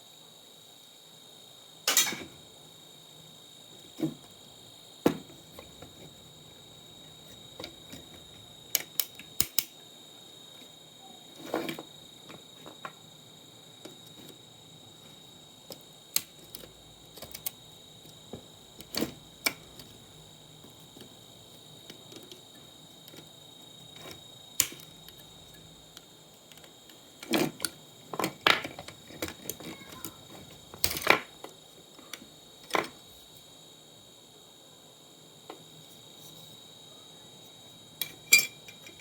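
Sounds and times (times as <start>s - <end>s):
faint high-pitched whine: 0.0s - 39.0s
small parts and tools clicking: 7.2s - 9.8s, 15.0s - 21.1s, 23.9s - 33.0s, 38.0s - 39.0s.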